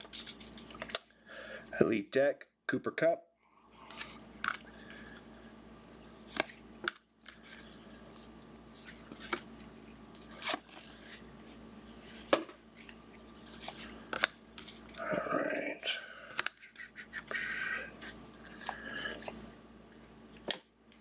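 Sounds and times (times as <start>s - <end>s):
trading cards rustling: 5.6s - 15.2s.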